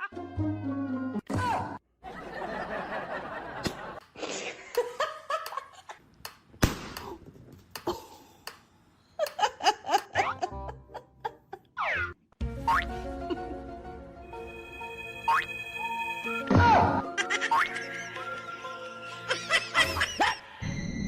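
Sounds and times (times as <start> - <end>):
background music: 0.0 - 1.8, 10.1 - 20.8
people laughing: 2.0 - 6.0, 17.2 - 20.5.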